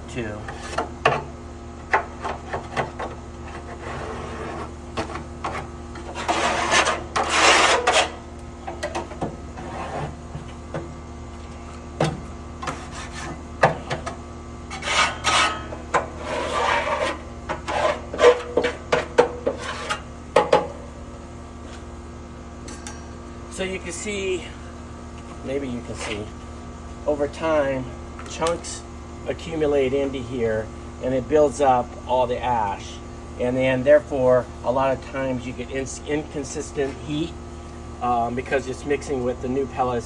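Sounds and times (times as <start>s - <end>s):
hand scraper scraping grill walls: 0.4s - 10.6s, 12.6s - 20.7s.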